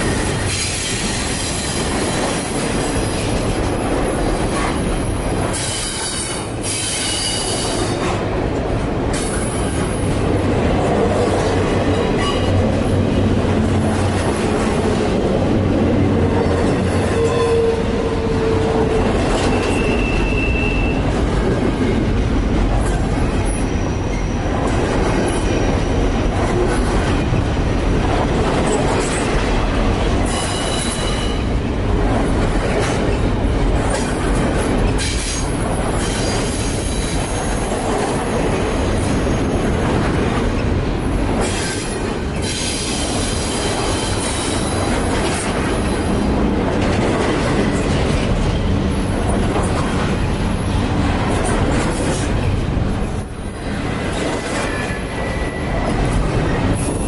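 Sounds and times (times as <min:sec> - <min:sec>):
high wheel squeals: 0:19.4 - 0:21.0
wheel-on-rail rumble: 0:44.5 - 0:57.0.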